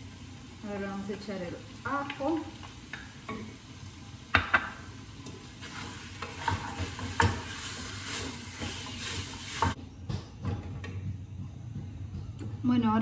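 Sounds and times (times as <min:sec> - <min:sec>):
meat sizzling in a pot: 0:00.0 - 0:09.8
utensil scraping a metal pot: 0:05.6 - 0:09.8.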